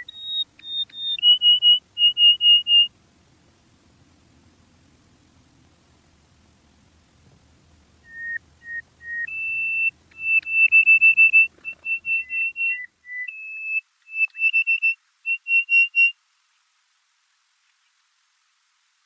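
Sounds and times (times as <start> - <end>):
high whistled notes: 8.0 - 16.1.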